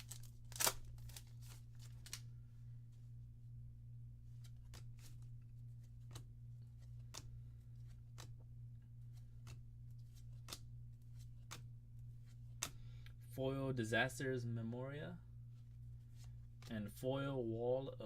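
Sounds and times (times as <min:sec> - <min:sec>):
trading cards flipping: 0:00.0 - 0:02.3, 0:04.3 - 0:13.0
low hum: 0:00.0 - 0:18.0.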